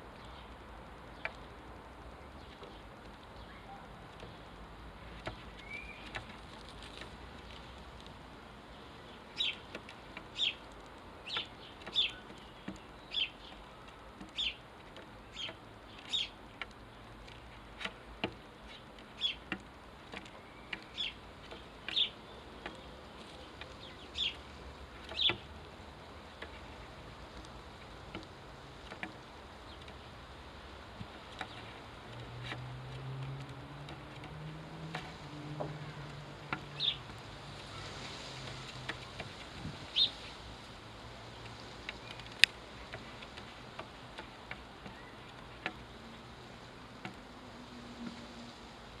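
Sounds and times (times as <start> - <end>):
sparrow chirping: 5.3 - 7.0, 9.0 - 9.7, 10.4 - 13.7, 14.3 - 14.6, 15.3 - 16.4, 18.6 - 19.5, 20.4 - 25.5, 36.7 - 37.1, 39.9 - 40.4.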